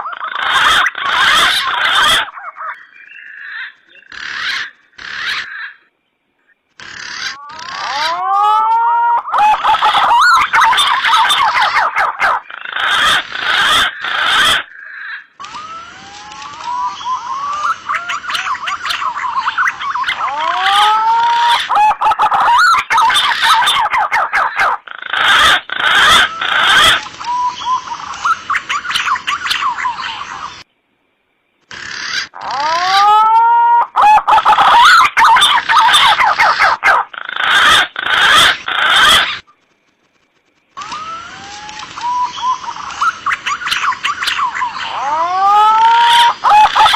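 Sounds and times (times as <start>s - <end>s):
pigeons calling with whistled notes: 15.4s - 30.6s, 34.0s - 39.5s, 40.8s - 46.9s.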